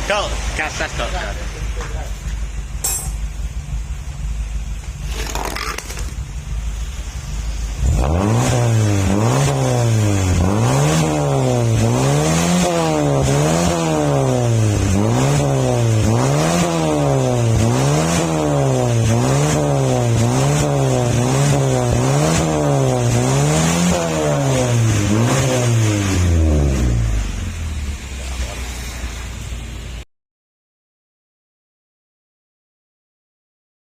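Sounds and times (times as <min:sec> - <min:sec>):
car engine revving: 0:03.4 - 0:30.0.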